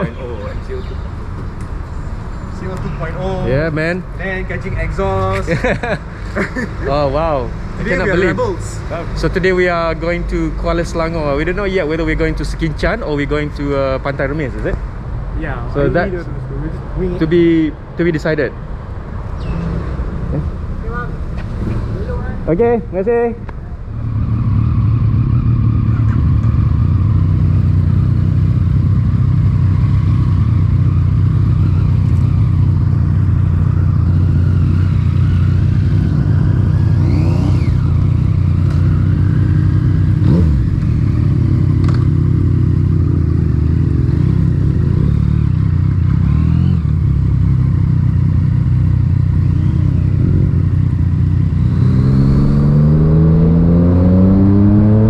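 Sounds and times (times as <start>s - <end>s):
motorcycle engine revving: 23.8s - 55.0s.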